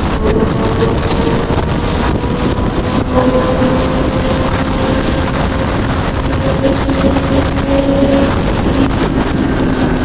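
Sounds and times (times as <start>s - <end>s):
motorcycle engine running: 0.0s - 10.0s
wind noise on microphone: 0.0s - 10.0s.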